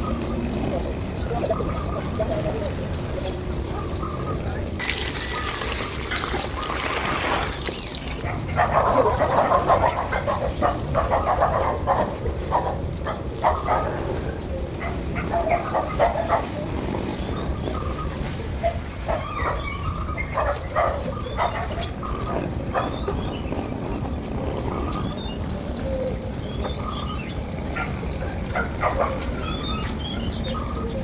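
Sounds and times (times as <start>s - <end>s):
trickling water hiss: 4.8s - 8.3s.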